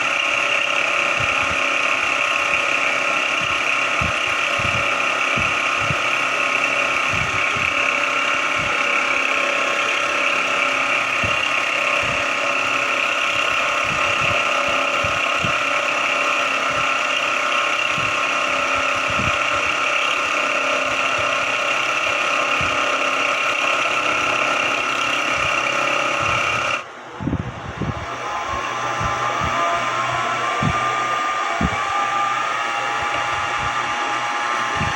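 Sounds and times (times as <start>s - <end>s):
mill-drill mechanical whine: 0.0s - 34.9s
low mechanical knocks: 2.5s - 9.3s, 29.0s - 32.3s.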